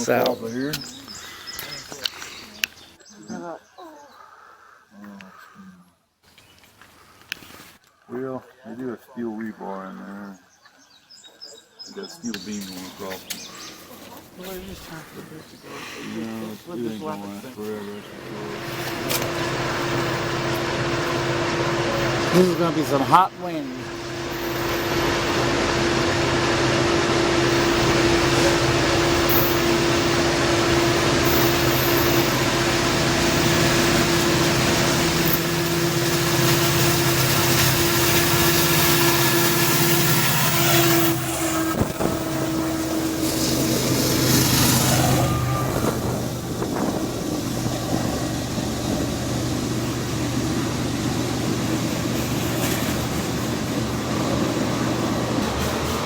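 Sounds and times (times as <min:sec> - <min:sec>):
train cars rolling past: 0:00.0 - 0:03.0, 0:12.3 - 0:56.0
diesel locomotive engines droning: 0:00.0 - 0:03.2, 0:12.0 - 0:56.0.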